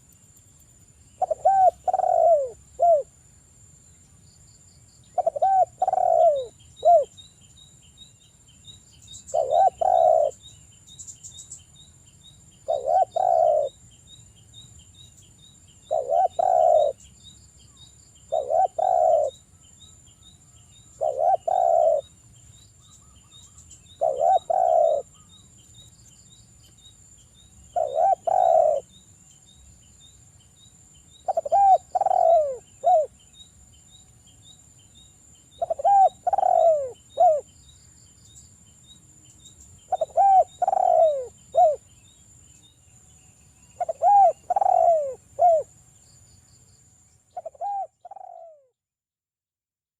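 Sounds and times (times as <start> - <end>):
dove cooing: 1.2 - 3.1, 5.2 - 7.1, 9.3 - 10.4, 12.6 - 13.8, 15.9 - 17.0, 18.3 - 19.4, 21.0 - 22.1, 23.9 - 25.3, 27.7 - 28.9, 31.2 - 33.1, 35.6 - 37.5, 39.9 - 41.8, 43.8 - 45.7, 47.4 - 48.7.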